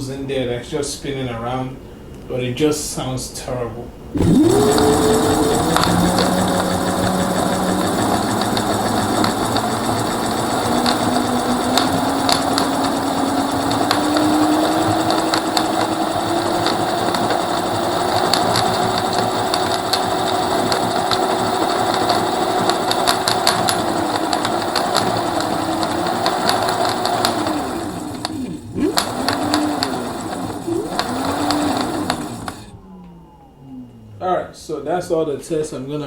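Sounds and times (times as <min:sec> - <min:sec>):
electric scooter motor whine: 0:04.1 - 0:33.6
rattle with clicks: 0:04.2 - 0:32.7.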